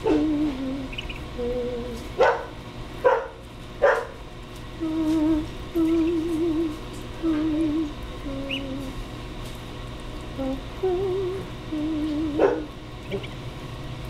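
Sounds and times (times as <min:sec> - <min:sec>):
low wavering hum: 0:00.0 - 0:14.0
dog barking: 0:02.2 - 0:04.2, 0:12.4 - 0:12.7.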